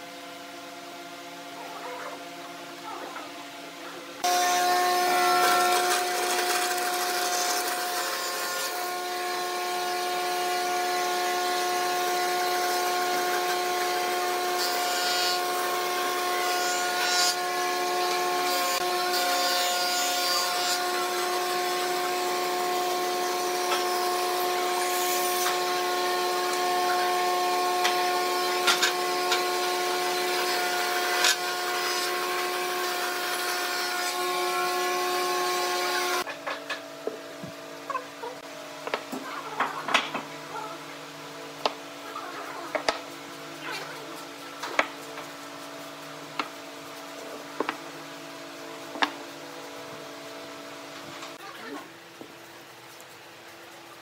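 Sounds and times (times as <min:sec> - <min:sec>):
tool cutting spinning wood: 0:04.2 - 0:19.4, 0:41.6 - 0:49.2
wood lathe motor whine: 0:04.2 - 0:19.8.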